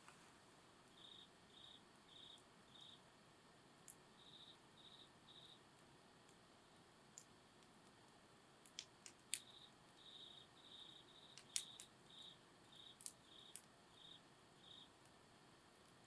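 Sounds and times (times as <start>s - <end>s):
cricket chirping in trills: 0.8s - 15.9s
campfire wood crackling: 7.1s - 9.6s, 11.2s - 13.8s
sharp pops of fire: 11.3s - 12.0s.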